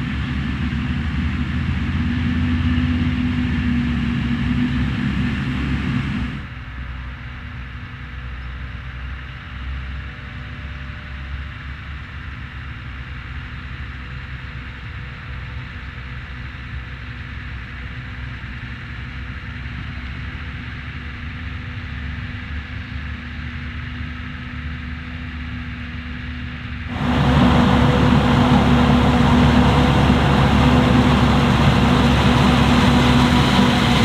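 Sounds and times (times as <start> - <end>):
constant machine hum: 26.9 - 34.0
diesel engine rumbling: 26.9 - 34.0.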